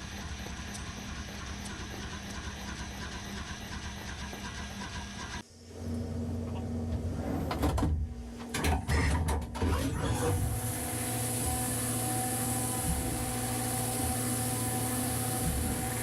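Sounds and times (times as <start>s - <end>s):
milling machine running with whine: 9.9s - 16.0s.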